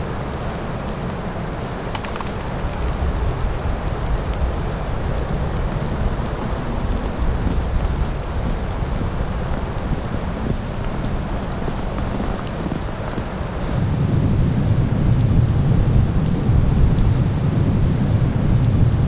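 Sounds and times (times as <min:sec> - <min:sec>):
low wind rumble: 0:00.0 - 0:19.0
precipitation pattering: 0:01.6 - 0:03.2.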